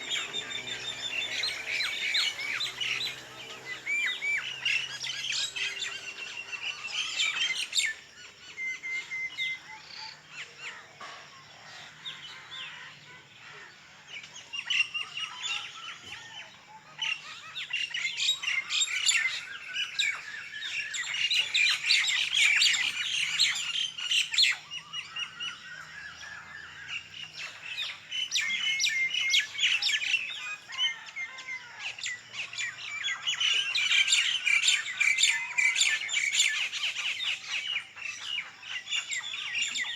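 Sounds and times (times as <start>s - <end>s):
small birds chirping and calling: 0.0s - 39.9s.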